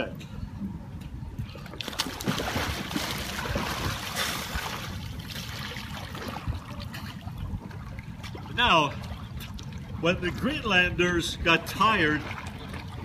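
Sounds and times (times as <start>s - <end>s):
water splashing and sloshing: 1.1s - 13.0s
paddle sweeping water surface: 1.8s - 10.4s.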